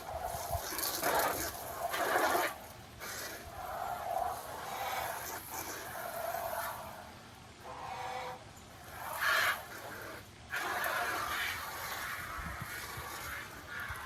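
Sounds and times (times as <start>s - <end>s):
chickens calling: 3.5s - 14.0s.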